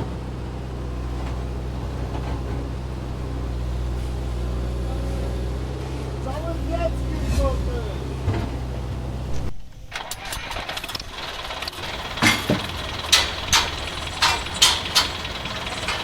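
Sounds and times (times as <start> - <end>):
motor humming: 11.8 - 16.0
sharp clicks or knocks: 11.8 - 16.0.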